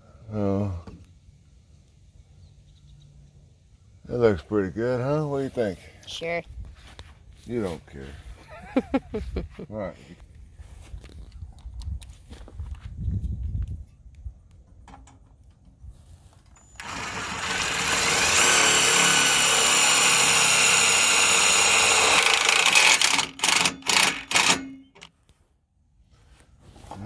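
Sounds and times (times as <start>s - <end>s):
power drill driving a screw: 16.6s - 25.0s.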